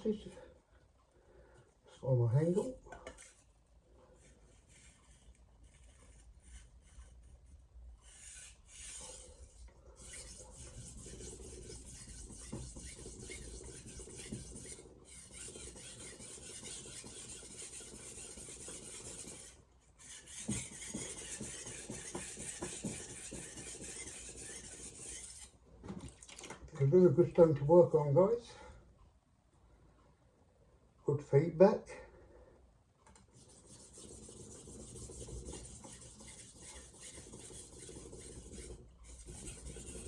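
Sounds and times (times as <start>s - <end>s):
knife scraping on whetstone: 8.1s - 25.6s.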